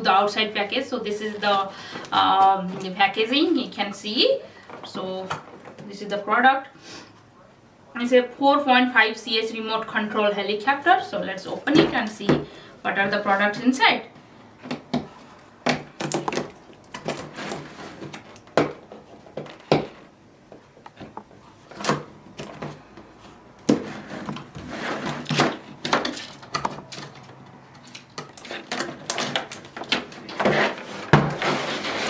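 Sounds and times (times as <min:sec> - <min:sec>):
packaging scraping and rustling: 0:15.2 - 0:19.7, 0:20.9 - 0:32.0.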